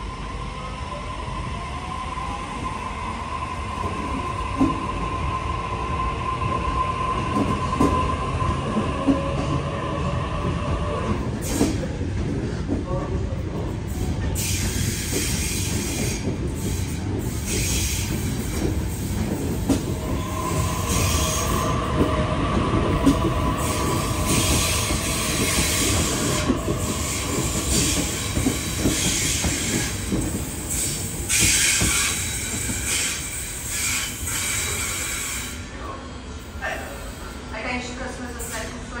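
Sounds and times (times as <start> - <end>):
train rumbling: 0.0 - 39.0
train wheel squeal: 14.4 - 18.6, 19.7 - 35.8.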